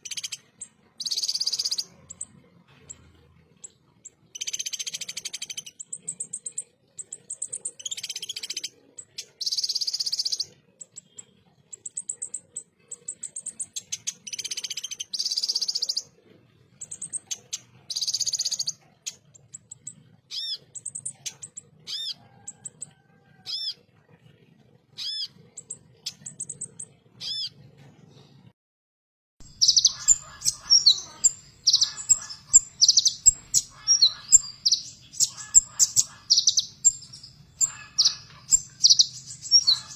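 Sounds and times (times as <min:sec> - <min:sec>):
sunbird singing trills: 0:00.0 - 0:02.3, 0:02.9 - 0:16.1, 0:29.4 - 0:39.9.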